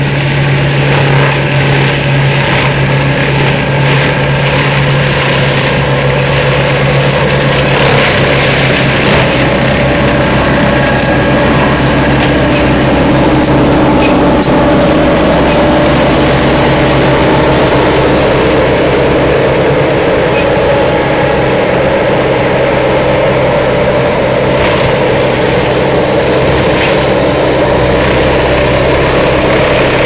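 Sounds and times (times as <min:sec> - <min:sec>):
low engine hum: 0:00.0 - 0:30.0
mulcher machine noise: 0:00.0 - 0:30.0.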